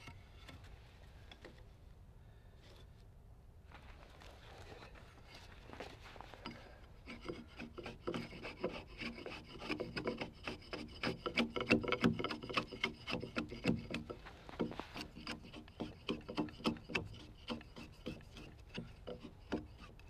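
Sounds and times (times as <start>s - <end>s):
hand tool scraping log: 6.3s - 20.0s.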